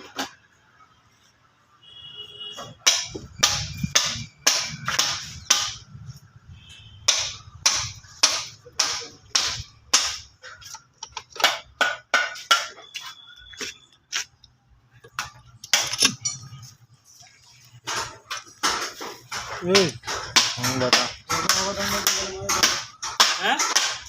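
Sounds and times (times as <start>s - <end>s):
sharp knocks and taps: 2.6s - 5.8s, 17.8s - 24.0s.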